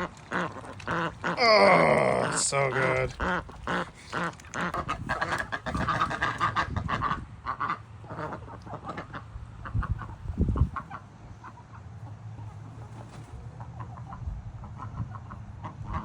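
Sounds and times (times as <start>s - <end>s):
ducks quacking: 0.0s - 12.2s
chickens clucking: 0.0s - 16.0s.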